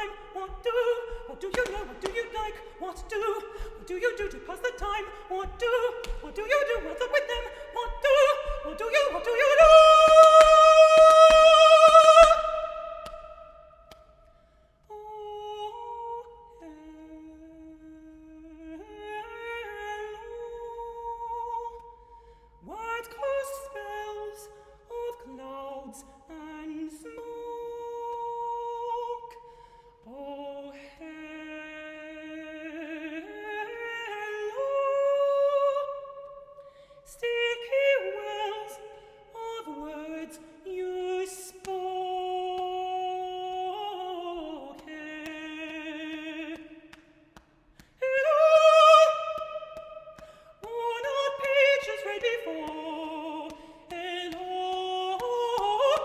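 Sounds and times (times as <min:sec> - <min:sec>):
person singing: 0:00.0 - 0:13.6, 0:47.8 - 0:56.0.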